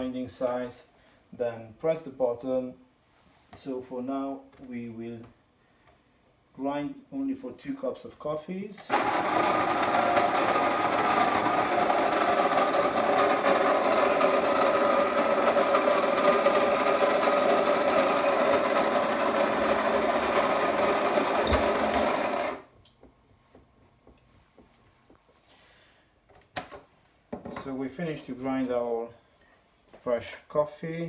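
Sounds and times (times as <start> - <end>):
electric coffee grinder whirring: 8.8 - 22.7.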